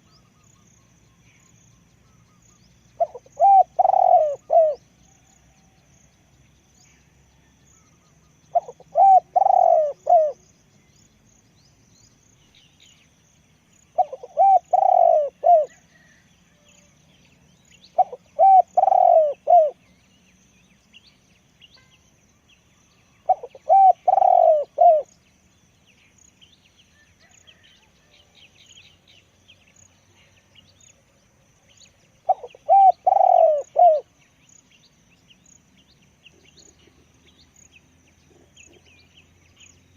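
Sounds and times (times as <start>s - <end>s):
small birds chirping: 0.0s - 39.9s
dove cooing: 3.0s - 4.9s, 8.5s - 10.4s, 14.0s - 16.2s, 18.0s - 19.8s, 23.3s - 25.1s, 32.2s - 34.1s.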